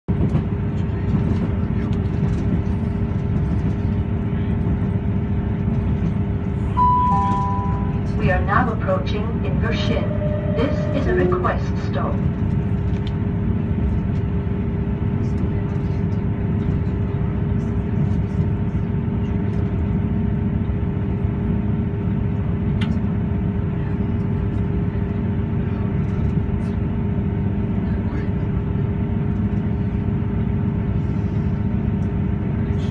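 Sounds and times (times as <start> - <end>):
train rumble inside carriage: 0.0 - 32.9
two-note falling chime: 6.8 - 8.1, 9.9 - 11.4.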